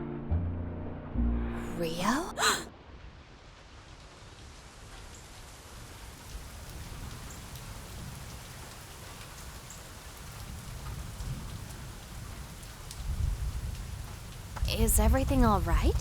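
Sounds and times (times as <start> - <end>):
steady rain: 1.9 - 16.0
raindrop ticks: 3.4 - 16.0.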